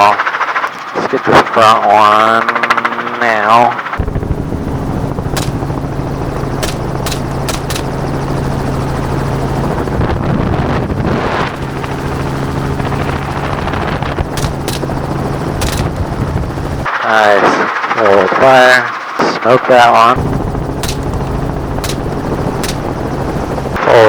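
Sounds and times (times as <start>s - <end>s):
helicopter engine and rotor: 4.0s - 17.0s, 20.1s - 24.0s
gunshot cracks: 5.4s - 5.8s, 6.6s - 8.1s, 14.4s - 15.0s, 15.6s - 16.1s, 20.8s - 23.0s.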